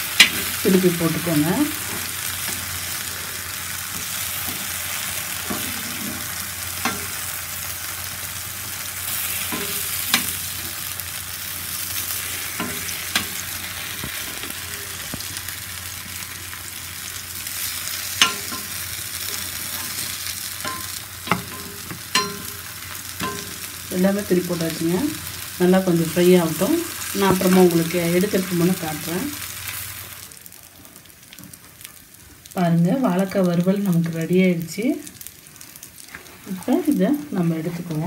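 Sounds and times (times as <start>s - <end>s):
slices sizzling in oil: 0.0s - 38.0s
metal spatula knocking a pan: 18.2s - 18.8s, 20.6s - 23.6s.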